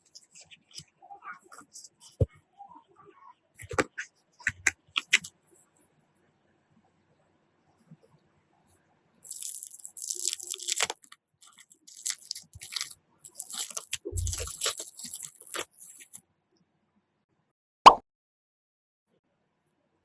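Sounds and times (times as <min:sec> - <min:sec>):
packaging crinkling and rustling: 0:09.2 - 0:16.2.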